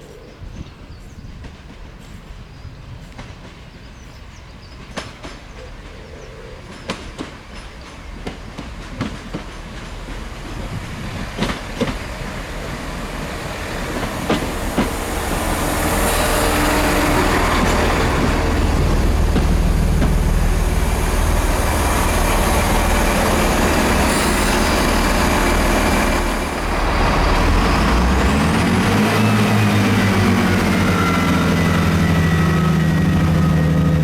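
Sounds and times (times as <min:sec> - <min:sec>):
train approaching: 0:00.7 - 0:34.0
wheels clicking on track: 0:06.7 - 0:34.0.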